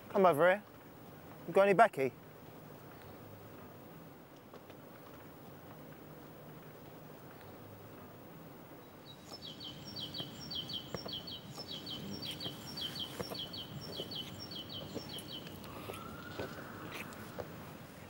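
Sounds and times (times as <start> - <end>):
outdoor background noise: 0.0 - 18.0
songbird chirping: 5.0 - 18.0.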